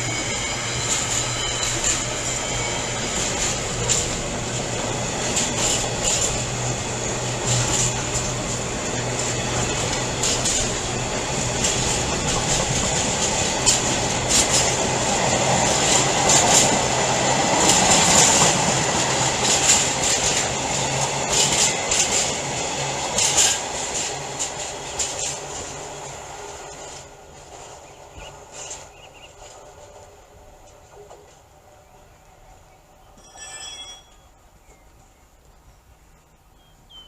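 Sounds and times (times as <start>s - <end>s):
wheels squealing: 0.0s - 16.9s, 33.2s - 34.4s
train wheels clattering: 0.0s - 31.6s.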